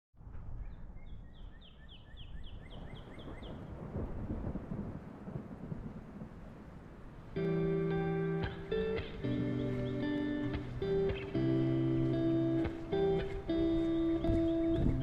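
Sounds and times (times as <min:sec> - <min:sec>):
songbird whistled notes: 0:00.6 - 0:03.6, 0:14.0 - 0:15.0.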